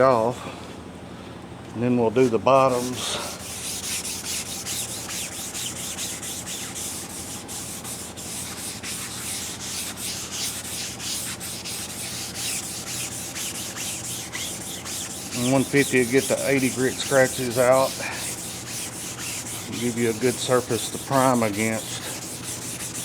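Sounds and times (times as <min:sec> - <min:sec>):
sandpaper scraping metal: 0:02.7 - 0:23.0.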